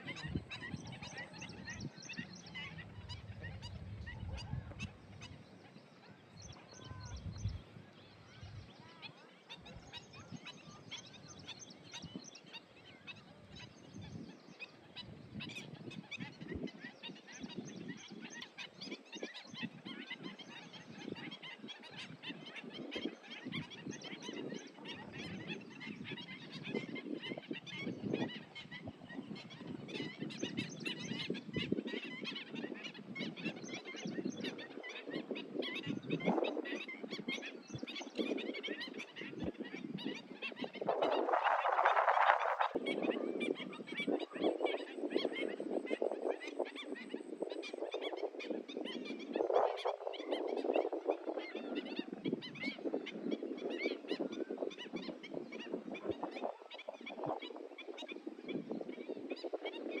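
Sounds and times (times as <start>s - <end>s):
flock of birds chirping: 0.0s - 60.0s.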